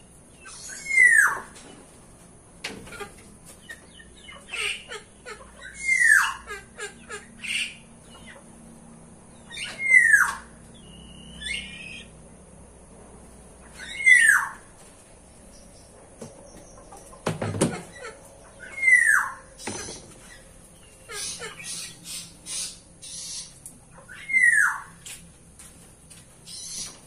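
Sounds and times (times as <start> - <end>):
faint bird chirps: 9.3 - 12.2.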